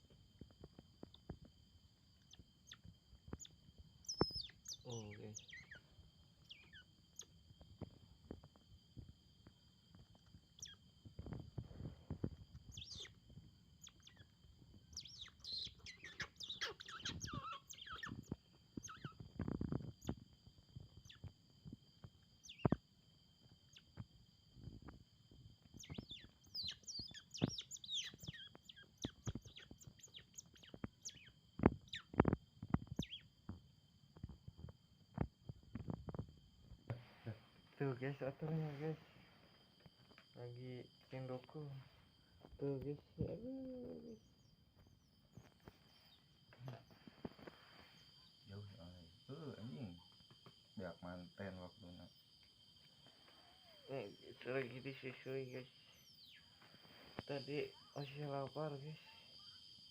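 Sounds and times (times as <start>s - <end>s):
otter chirping and squeaking: 2.3s - 7.3s, 10.6s - 10.8s, 12.7s - 13.2s, 13.8s - 20.2s, 22.4s - 22.8s, 25.7s - 33.3s.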